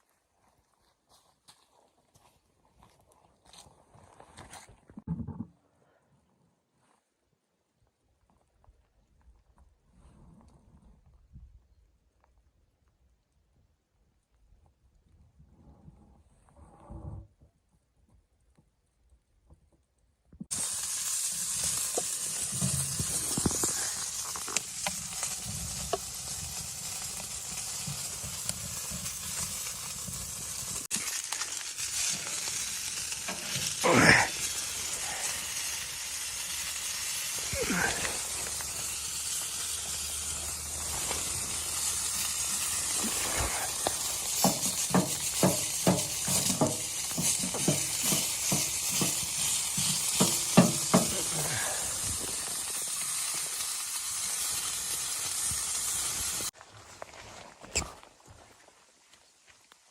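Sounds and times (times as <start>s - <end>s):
food sizzling in a pan: 20.5s - 56.6s
utensil scraping a pan: 42.7s - 51.3s.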